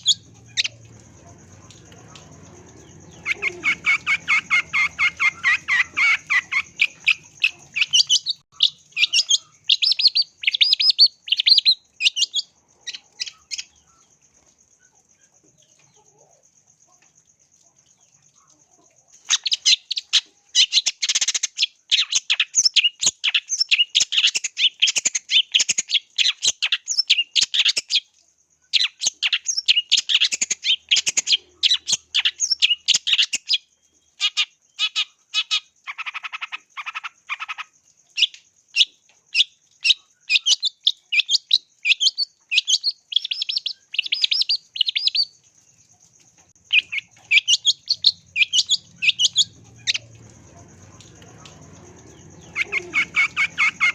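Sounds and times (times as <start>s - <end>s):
bird singing high chirps: 0.0s - 1.0s, 1.6s - 14.0s, 36.0s - 45.4s, 46.6s - 53.9s.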